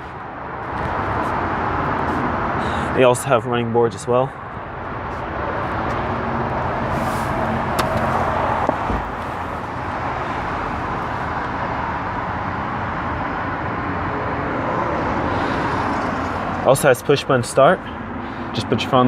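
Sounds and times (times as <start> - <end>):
low thump: 7.7 - 9.2.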